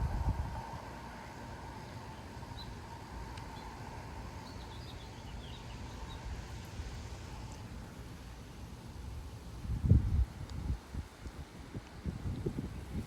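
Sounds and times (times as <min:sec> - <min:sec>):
wind buffeting microphone: 0:00.0 - 0:01.2, 0:09.5 - 0:13.0.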